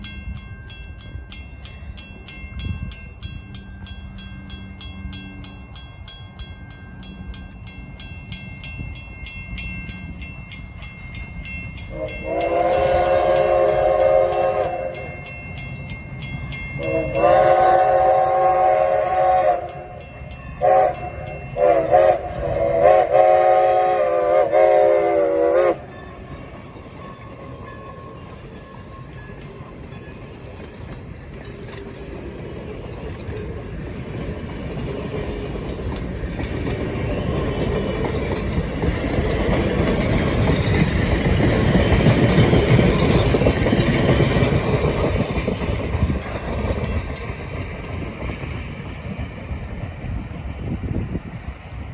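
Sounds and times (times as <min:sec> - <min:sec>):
train rumble and wheel noise: 0:00.0 - 0:51.9
train air horn: 0:11.9 - 0:15.2, 0:16.8 - 0:20.0, 0:20.6 - 0:25.9.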